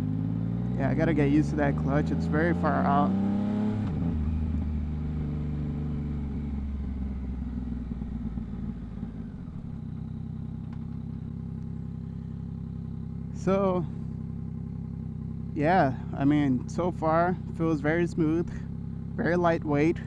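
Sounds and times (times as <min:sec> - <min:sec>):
motorcycle engine slowing to idle: 0:03.9 - 0:20.0.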